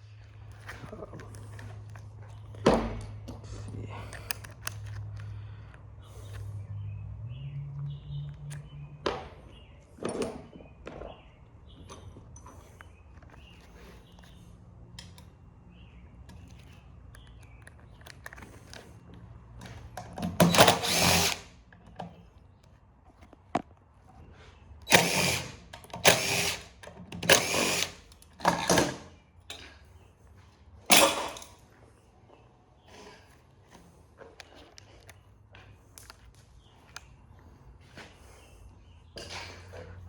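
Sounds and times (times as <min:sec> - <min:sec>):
power drill bursts: 0:20.2 - 0:21.6, 0:24.8 - 0:29.1, 0:30.9 - 0:31.6.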